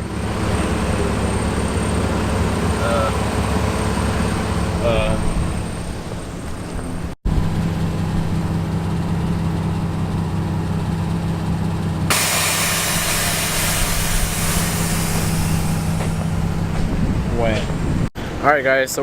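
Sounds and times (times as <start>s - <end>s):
car engine idling: 0.0s - 18.1s
loud steady hiss: 12.1s - 16.8s.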